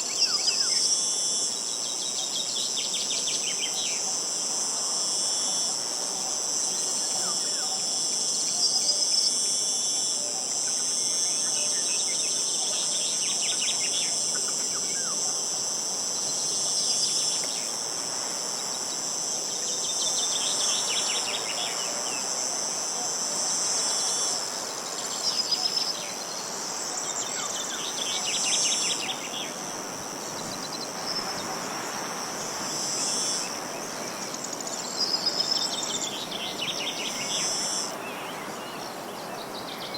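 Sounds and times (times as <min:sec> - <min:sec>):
insects chirring: 0:00.0 - 0:39.9
short rattling insect trills: 0:00.0 - 0:39.9
soft hiss of wind: 0:00.0 - 0:39.9.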